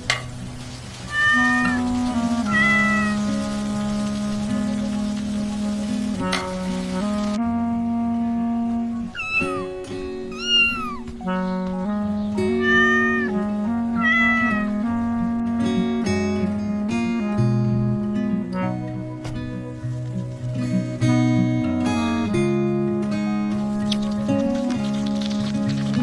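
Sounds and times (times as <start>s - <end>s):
background music of held notes: 0.0s - 26.0s
cat meowing: 1.1s - 3.4s, 9.0s - 11.2s, 12.4s - 14.8s.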